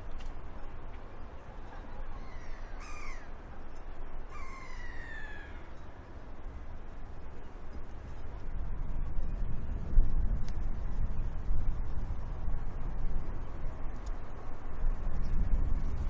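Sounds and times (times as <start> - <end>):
steady low rumble: 0.0 - 16.0
large bird harsh calls: 2.2 - 3.3, 4.3 - 5.7.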